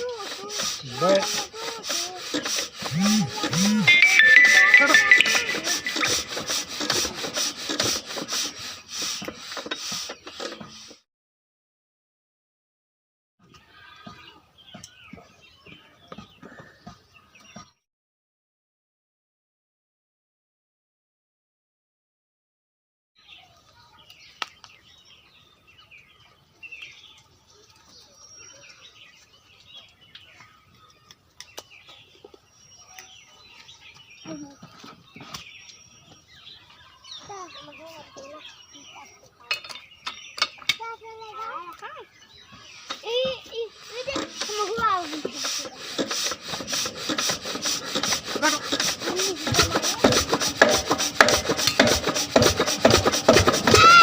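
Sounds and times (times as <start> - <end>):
small birds chirping: 13.5 - 17.8, 23.2 - 54.0
diesel engine cranking and starting: 45.4 - 53.8.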